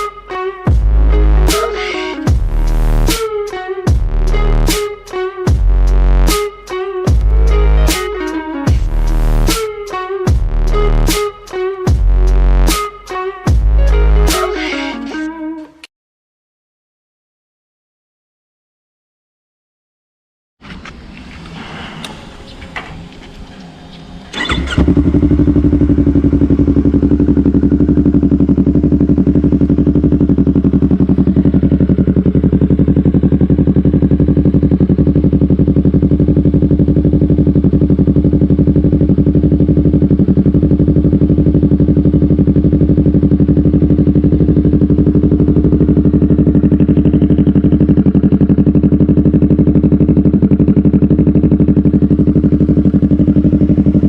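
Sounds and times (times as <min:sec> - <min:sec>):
motorcycle engine idling: 0:07.0 - 0:12.4, 0:22.3 - 0:54.0
engine clicks: 0:20.7 - 0:27.1.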